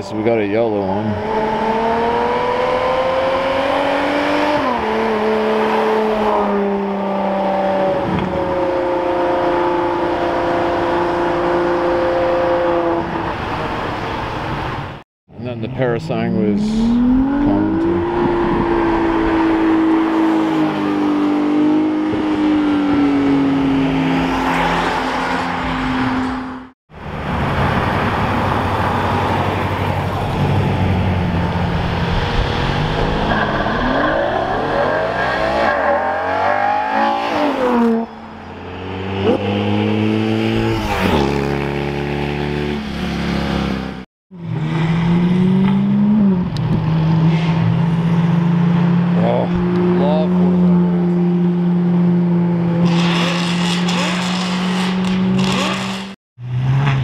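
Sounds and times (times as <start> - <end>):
sports cars accelerating past: 16.9 - 57.0.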